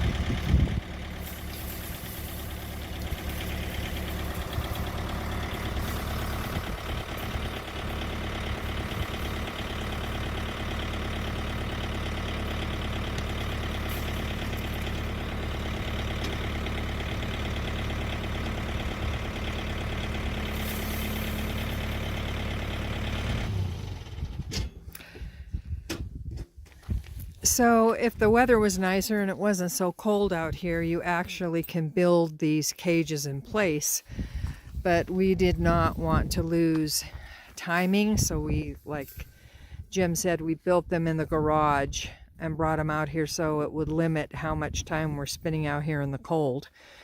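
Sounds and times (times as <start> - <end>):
engine idling: 0.0 - 26.2.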